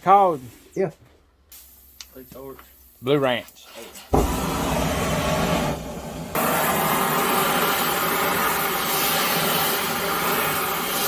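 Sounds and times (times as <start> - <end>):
torch flame hissing: 3.6 - 11.0.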